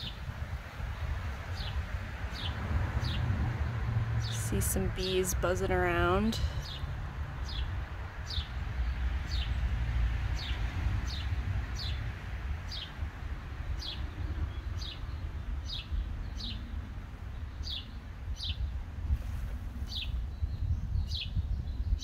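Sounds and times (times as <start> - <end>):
songbird chirping: 1.5 - 9.7.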